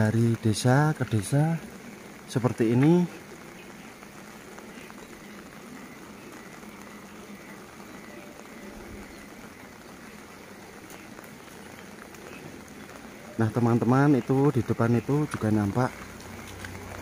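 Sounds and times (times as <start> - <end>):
light rain falling: 0.0 - 17.0.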